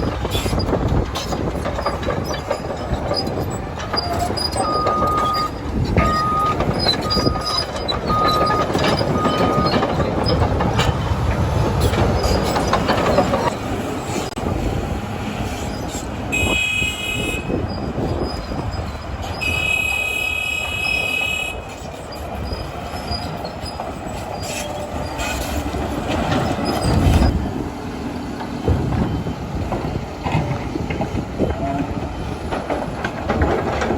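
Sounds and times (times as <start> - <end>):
bulldozer diesel engine running: 0.0 - 33.9
steel tracks clattering: 0.0 - 33.9
high-pitched squeals from running gear: 2.6 - 10.4, 15.7 - 25.6
reversing alarm beeping: 4.1 - 9.8.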